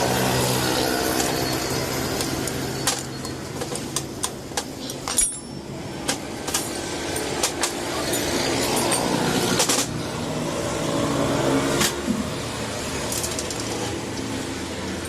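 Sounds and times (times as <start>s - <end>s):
road traffic hum: 0.0s - 15.0s
metal tools clinking on engine parts: 1.0s - 10.2s, 12.9s - 15.0s.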